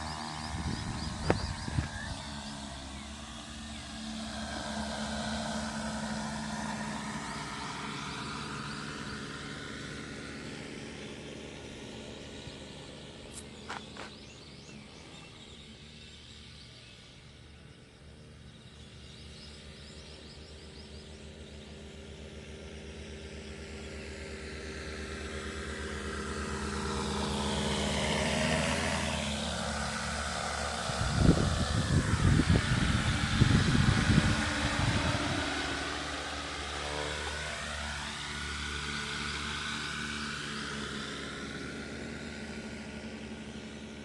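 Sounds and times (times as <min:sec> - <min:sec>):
wind rumbling on microphone: 0:00.0 - 0:03.0, 0:29.6 - 0:36.2
drone rotors whining: 0:00.0 - 0:44.0.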